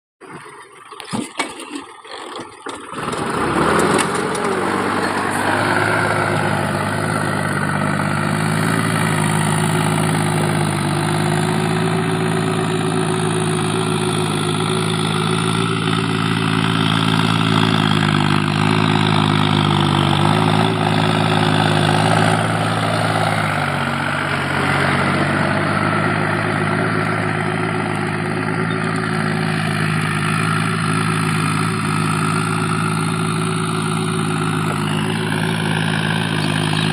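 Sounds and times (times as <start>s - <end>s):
tractor diesel engine running: 2.4s - 36.9s.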